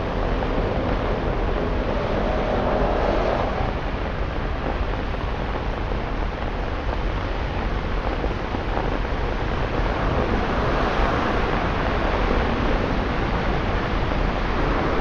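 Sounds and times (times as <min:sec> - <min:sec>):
rain hissing: 0:00.0 - 0:15.0
traffic: 0:00.0 - 0:15.0
tyres rushing through water: 0:09.1 - 0:15.0.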